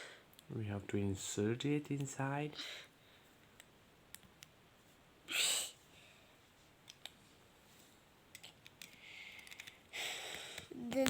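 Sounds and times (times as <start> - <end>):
plastic toy bricks clicking: 8.3 - 9.8.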